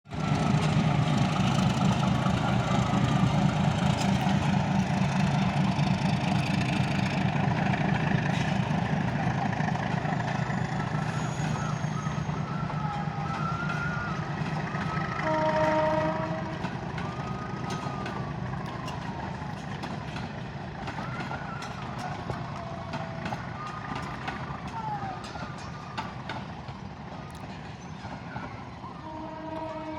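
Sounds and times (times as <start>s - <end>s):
diesel locomotive engine rumbling: 0.0s - 29.9s
train horn: 11.0s - 17.2s, 28.9s - 29.9s.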